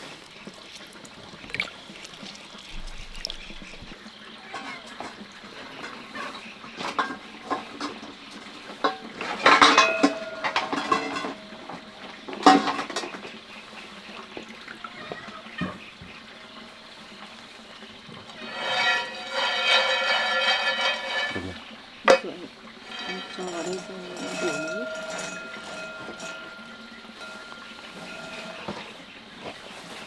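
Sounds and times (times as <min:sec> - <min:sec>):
metal pots and pans clanking: 0:00.0 - 0:30.0.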